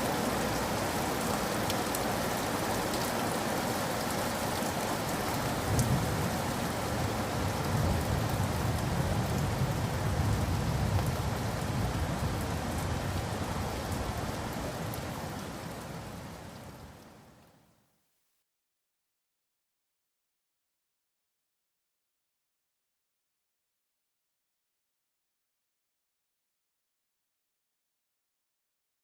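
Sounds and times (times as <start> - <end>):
rain falling: 0.0 - 17.8
rolling thunder: 5.6 - 13.9.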